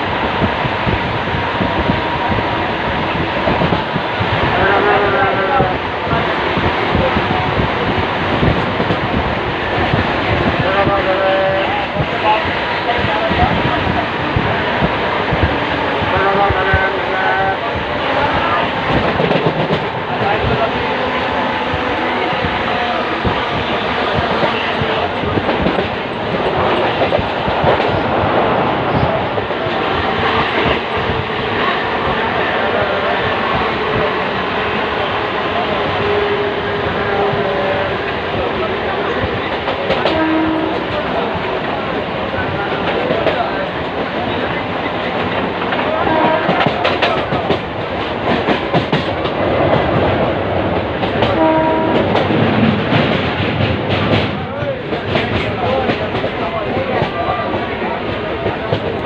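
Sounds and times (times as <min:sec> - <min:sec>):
train knocks and clatter: 0:00.0 - 0:59.0
train wheels rumbling on rails: 0:00.0 - 0:59.0
short train horn toot: 0:40.1 - 0:40.8, 0:51.4 - 0:52.0.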